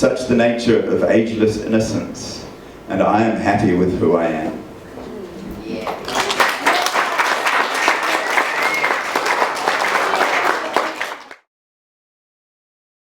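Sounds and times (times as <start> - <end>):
audience applauding: 5.8 - 11.4.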